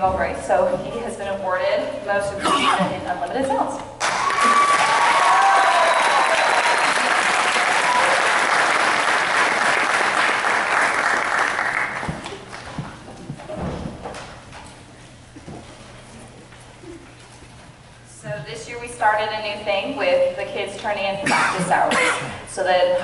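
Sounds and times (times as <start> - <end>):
whoops: 4.0 - 8.5
audience applauding: 4.0 - 12.8
knocks and shuffles: 12.0 - 18.6.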